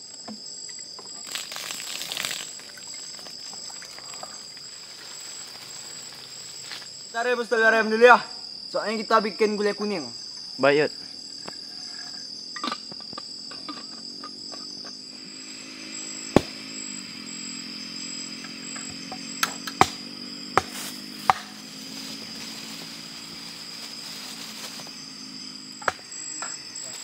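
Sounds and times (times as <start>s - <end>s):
insects chirring: 0.0s - 27.0s
sharp knocks: 16.3s - 16.6s, 18.8s - 20.0s, 20.6s - 21.6s.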